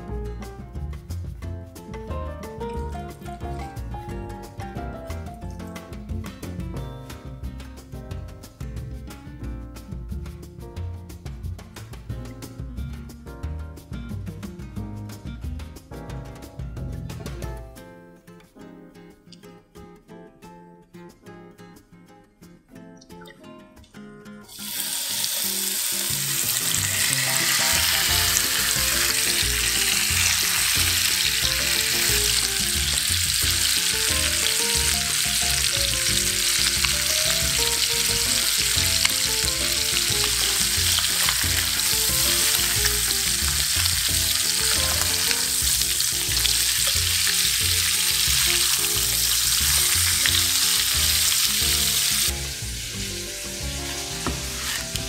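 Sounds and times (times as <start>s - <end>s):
chicken frying in oil: 24.5s - 55.0s.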